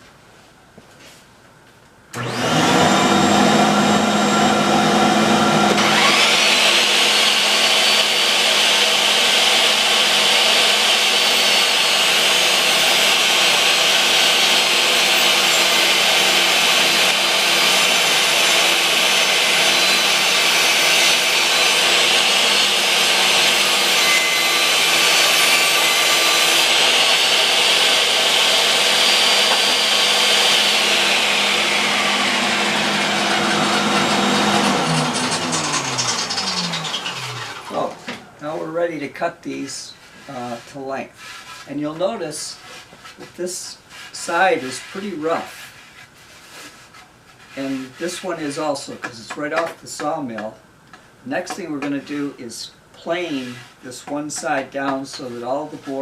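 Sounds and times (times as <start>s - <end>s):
table saw cutting wood: 2.2s - 39.1s, 53.1s - 56.0s.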